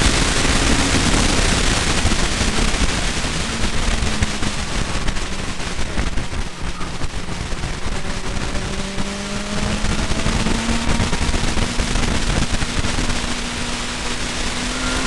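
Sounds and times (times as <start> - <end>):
car engine accelerating: 0.0 - 15.0
wind and road noise: 0.0 - 15.0.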